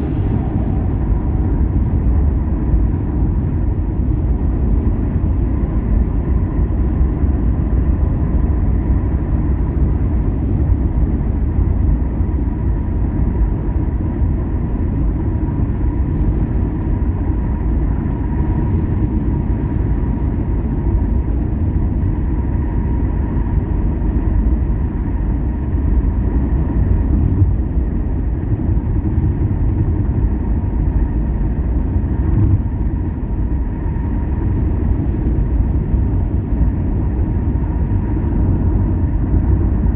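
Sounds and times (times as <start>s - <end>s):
faint steady whine: 0.0s - 7.1s
vehicle engine and road rumble: 0.0s - 39.9s.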